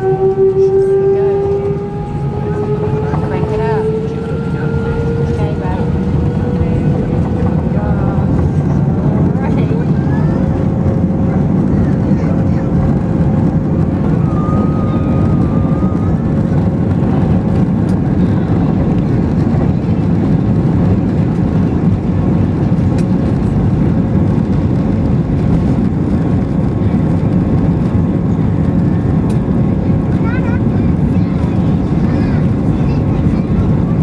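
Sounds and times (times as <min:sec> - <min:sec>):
jet engines roaring in cabin: 0:00.0 - 0:34.0.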